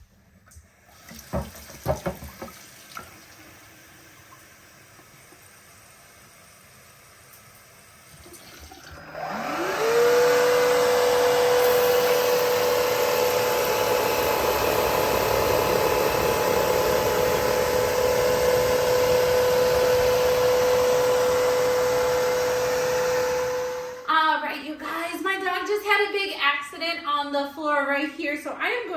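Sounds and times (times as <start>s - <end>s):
vacuum motor whine: 8.8s - 24.1s
suction hiss: 10.8s - 24.1s.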